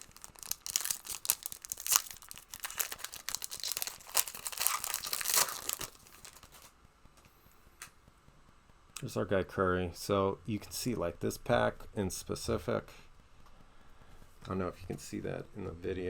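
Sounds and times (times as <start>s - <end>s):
wrapper tearing and crinkling: 0.0s - 6.7s.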